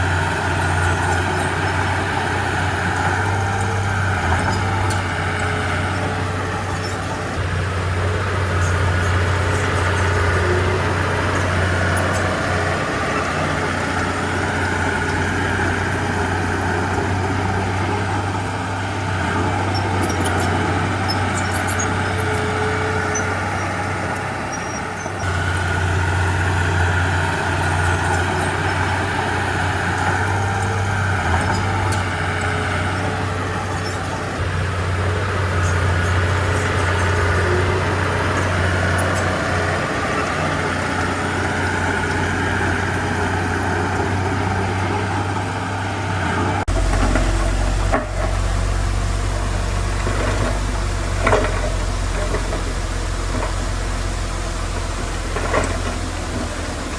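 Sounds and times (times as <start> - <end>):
grinding noise: 0.0 - 56.2
heavy diesel machinery drone: 0.0 - 56.9.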